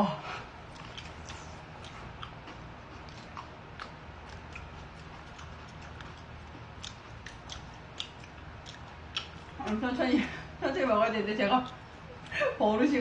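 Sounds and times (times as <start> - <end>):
steady low hum: 0.0 - 13.0
chewing mouth clicks and smacks: 0.7 - 9.8.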